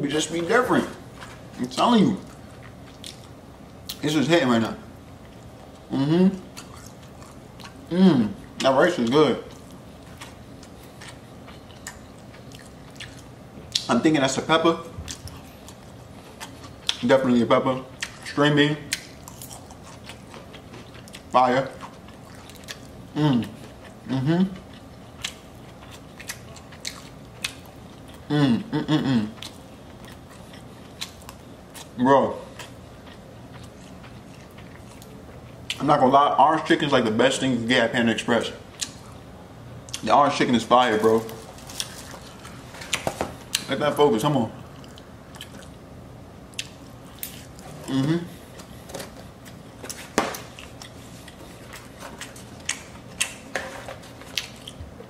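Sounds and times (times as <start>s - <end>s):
chewing food: 1.1s - 4.1s, 5.0s - 13.9s, 15.0s - 17.1s, 17.8s - 28.3s, 29.3s - 35.9s, 44.6s - 45.8s, 46.5s - 55.0s
mouth chewing: 17.9s - 35.9s.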